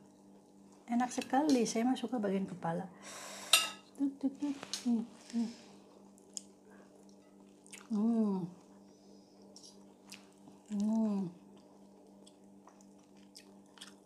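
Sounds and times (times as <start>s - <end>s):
person humming: 4.0s - 5.7s, 7.9s - 8.6s, 10.7s - 11.4s
soft chewing: 4.4s - 14.0s.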